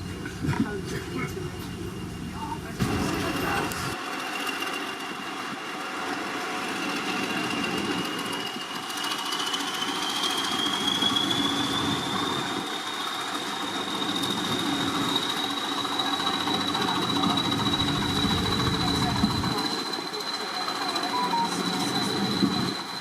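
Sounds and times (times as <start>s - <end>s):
diesel locomotive engine: 0.0s - 23.0s
high whine rising in pitch: 13.6s - 20.1s.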